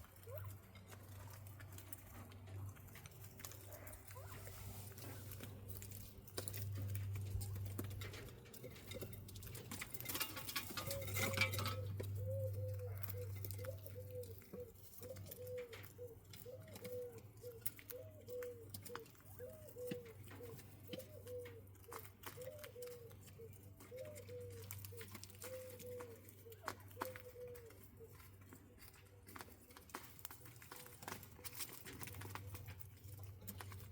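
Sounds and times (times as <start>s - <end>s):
scratching and pecking: 0.0s - 33.9s
quail calling: 10.8s - 28.2s.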